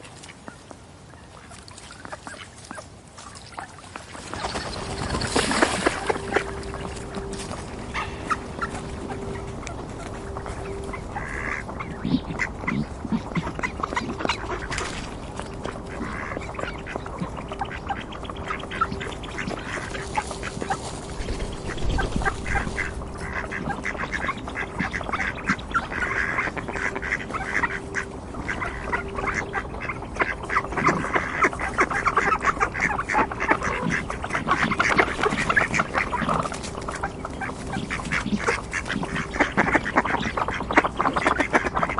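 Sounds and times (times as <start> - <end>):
ducks quacking: 0.0 - 41.9.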